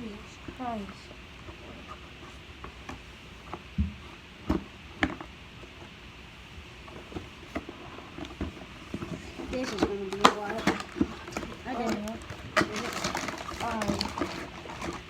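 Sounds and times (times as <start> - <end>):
box and packets clicking: 9.0 - 15.0.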